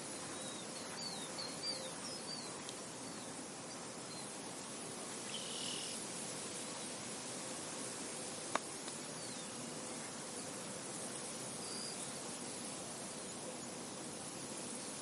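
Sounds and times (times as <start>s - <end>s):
small birds chirping: 0.0s - 6.0s, 8.5s - 10.4s.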